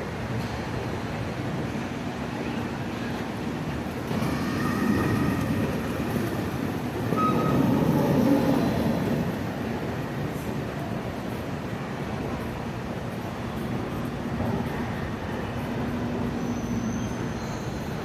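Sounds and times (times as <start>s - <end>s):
train rumbling on tracks: 0.0s - 18.0s
faint brief squeals: 7.1s - 8.8s.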